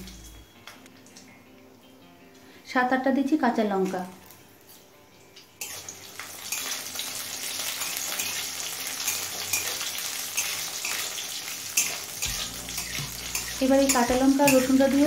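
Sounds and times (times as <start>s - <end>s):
garlic sizzling in oil: 5.2s - 15.0s
spatula scraping metal pan: 5.6s - 5.9s, 7.9s - 15.0s.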